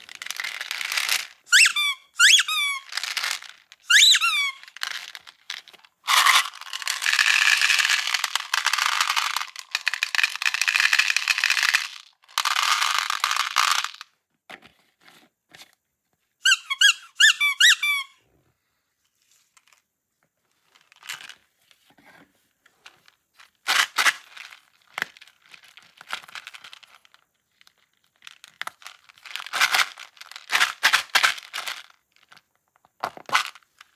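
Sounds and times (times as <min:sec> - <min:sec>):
high sliding squeaks: 0:01.5 - 0:02.9, 0:03.9 - 0:04.6.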